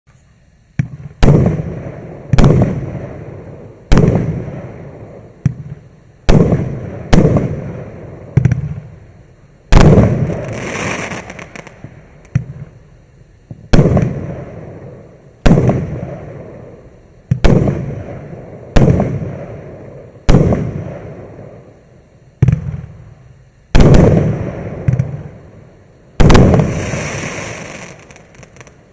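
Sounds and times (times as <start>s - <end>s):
high crackling hiss: 0.1s - 28.9s
fireworks bangs with rumbling tail: 0.7s - 9.0s, 9.7s - 21.8s, 22.4s - 25.5s, 26.2s - 28.9s.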